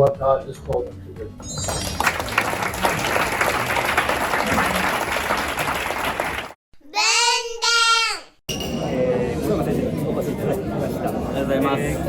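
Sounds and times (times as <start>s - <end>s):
audience applauding: 1.6s - 6.6s.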